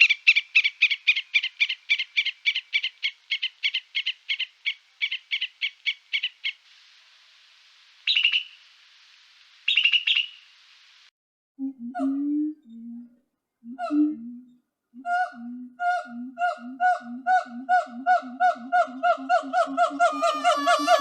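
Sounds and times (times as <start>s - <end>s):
bird chirping rapidly: 8.1s - 8.6s, 9.7s - 10.5s.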